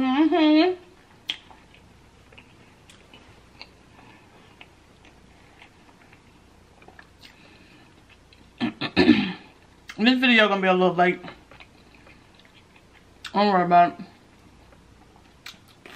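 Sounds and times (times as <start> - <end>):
faint closed-mouth chewing: 1.2 - 8.6, 14.6 - 15.9.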